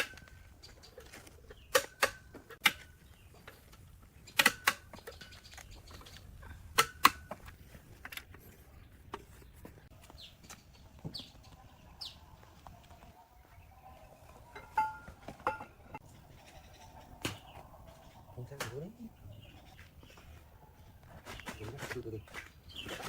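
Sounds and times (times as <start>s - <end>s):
bird chirps: 8.7s - 23.0s.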